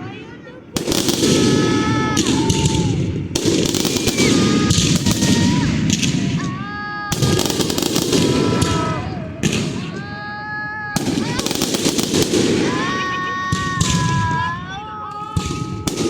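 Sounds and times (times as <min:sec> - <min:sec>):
fireworks crackling bangs: 0:00.0 - 0:16.0
fireworks whistling: 0:00.7 - 0:16.0.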